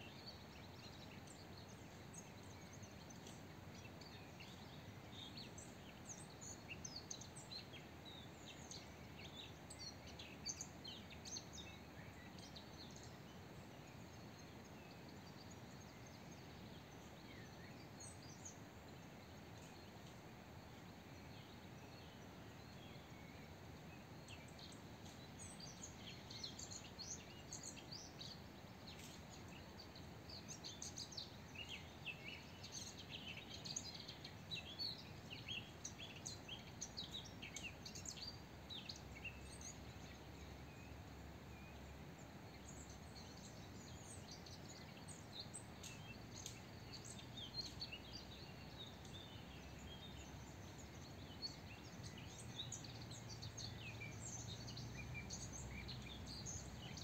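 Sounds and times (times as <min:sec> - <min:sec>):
faint outdoor hiss: 0:00.0 - 0:57.0
small birds chirping: 0:00.0 - 0:57.0.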